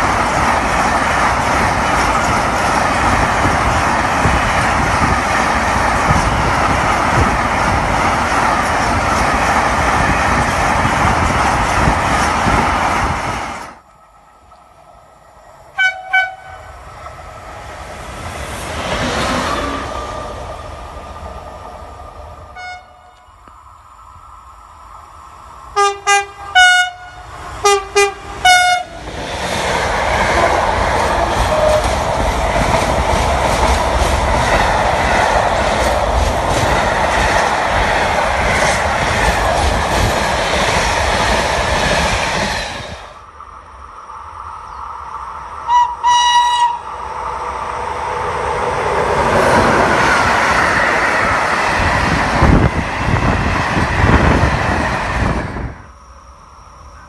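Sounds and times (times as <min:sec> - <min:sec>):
train passing with rumble and rattle: 0:00.0 - 0:57.0
train horn blasts: 0:15.8 - 0:16.8, 0:22.6 - 0:23.4, 0:25.8 - 0:29.0, 0:45.7 - 0:47.0.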